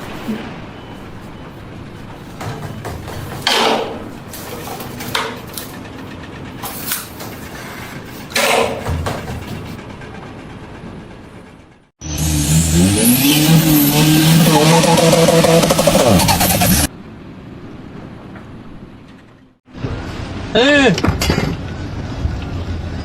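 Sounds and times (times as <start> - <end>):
noisy knocks or scrapes: 2.1 - 5.8, 6.6 - 9.8
engine running up: 4.3 - 16.9.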